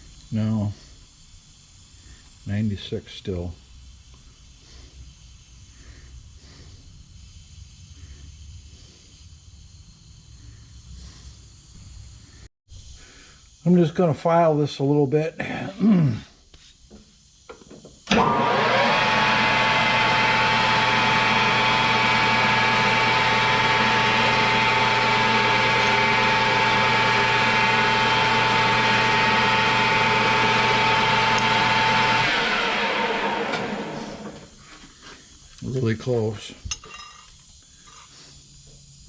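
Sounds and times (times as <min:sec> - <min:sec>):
lathe motor running: 0:18.1 - 0:34.6.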